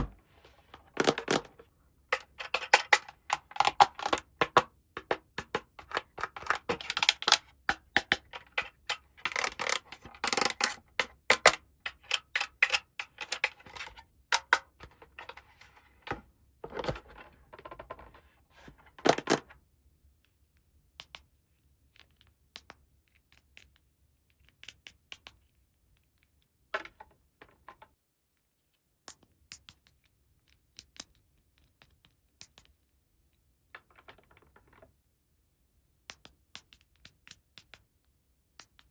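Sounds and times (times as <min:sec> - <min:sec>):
plastic toy pieces clicking: 0:00.7 - 0:16.2.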